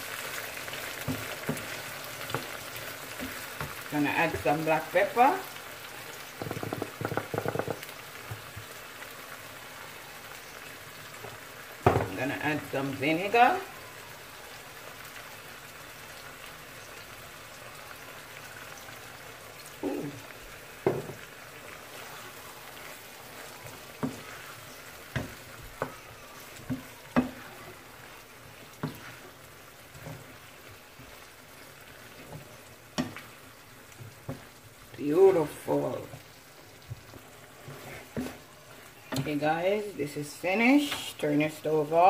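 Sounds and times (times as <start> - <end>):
food sizzling in a skillet: 0.0 - 42.0
wooden spatula tapping pan: 6.3 - 8.7, 20.8 - 21.3, 23.6 - 27.9, 28.7 - 29.2, 32.2 - 33.3.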